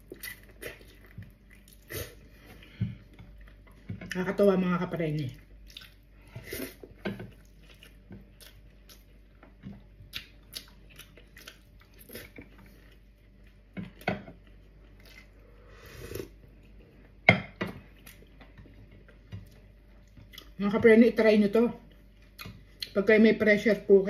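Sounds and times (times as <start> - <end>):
person chewing: 0.0 - 4.2, 5.2 - 17.2, 17.8 - 20.6.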